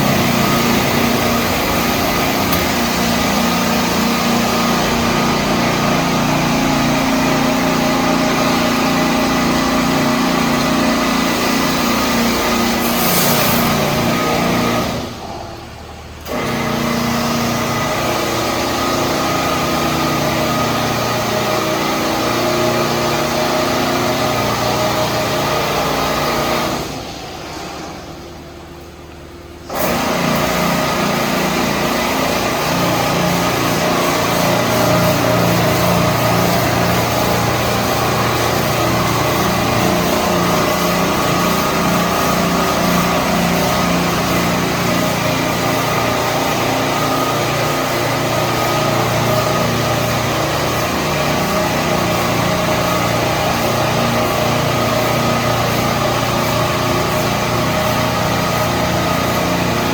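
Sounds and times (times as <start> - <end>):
pump humming: 0.0 - 59.9
hiss of water spray: 11.2 - 14.8.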